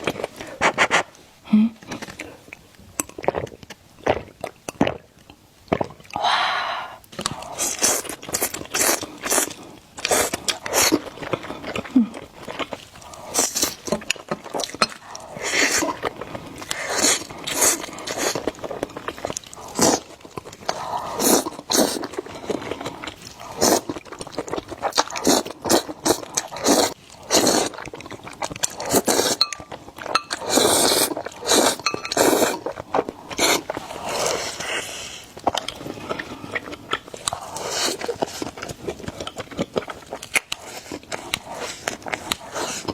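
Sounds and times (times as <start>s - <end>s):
wet chewing and mouth smacks: 1.8s - 6.2s, 7.0s - 33.8s, 35.4s - 42.9s
noodle slurping: 19.6s - 36.5s.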